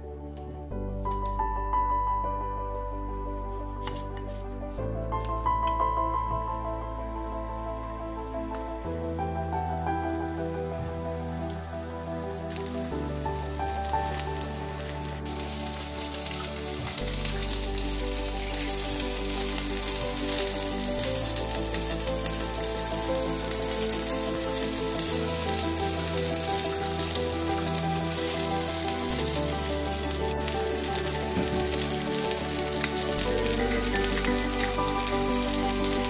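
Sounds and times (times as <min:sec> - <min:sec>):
background music: 0:00.0 - 0:36.0
vegetables sizzling in a frying pan: 0:12.5 - 0:36.0.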